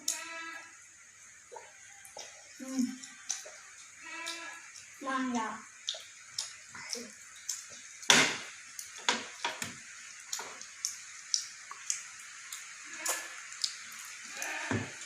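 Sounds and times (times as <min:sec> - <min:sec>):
wet chewing and lip smacks: 0:01.6 - 0:05.0, 0:05.7 - 0:09.5, 0:10.1 - 0:14.3.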